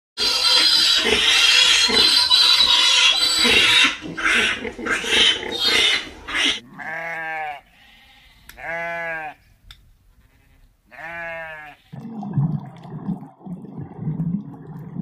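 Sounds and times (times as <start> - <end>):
piglets squealing: 0.2 - 9.3
sheep bleating: 6.6 - 9.5, 10.2 - 12.0.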